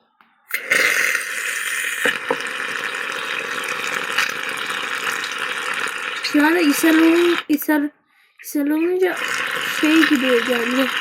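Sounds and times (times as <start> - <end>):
tap running into sink: 2.0 - 2.5.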